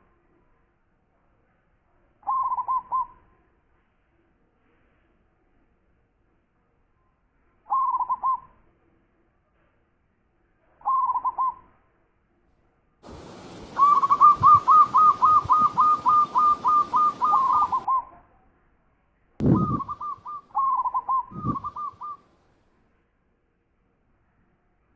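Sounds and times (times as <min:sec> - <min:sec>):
dove cooing: 0:02.3 - 0:03.1, 0:13.2 - 0:18.0, 0:19.4 - 0:22.2
hiss: 0:13.0 - 0:17.8.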